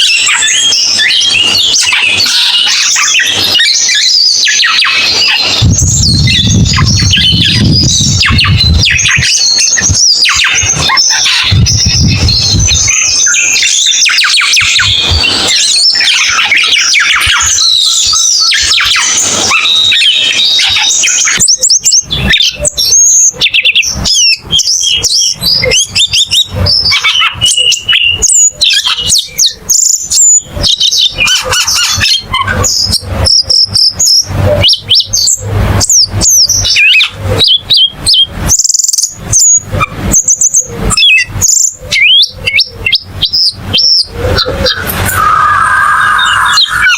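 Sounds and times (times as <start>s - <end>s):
songbird chirping and trilling: 0.0s - 46.9s.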